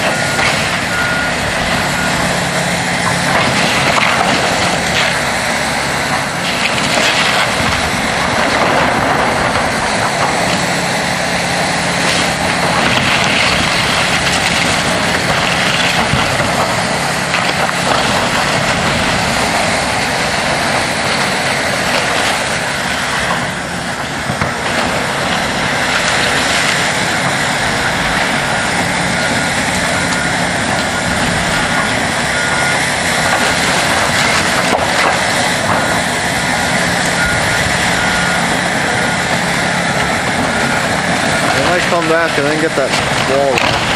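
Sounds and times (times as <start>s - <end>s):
heavy diesel machinery running: 0.0s - 43.9s
faint backup beeper: 0.1s - 2.3s, 27.8s - 32.9s, 37.1s - 39.4s.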